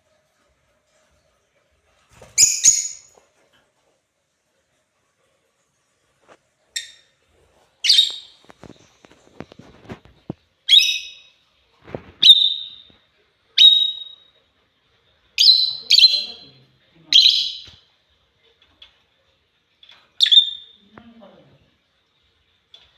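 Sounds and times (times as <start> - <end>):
lovebirds calling: 2.4 - 3.1, 7.8 - 10.0, 10.7 - 11.3, 11.9 - 12.9, 13.6 - 14.2, 15.4 - 17.8, 20.2 - 20.8.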